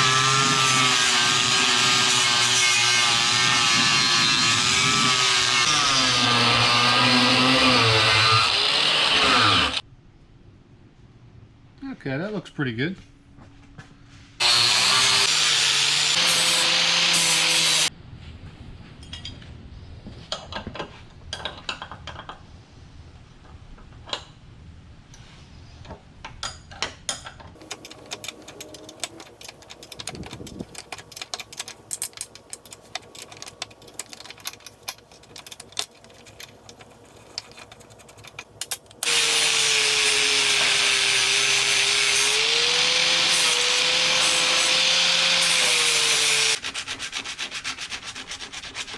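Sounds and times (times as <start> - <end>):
electric power tool grinding metal: 0.0 - 9.8, 14.4 - 17.9, 27.6 - 46.6
scraping and clicking: 27.6 - 39.2.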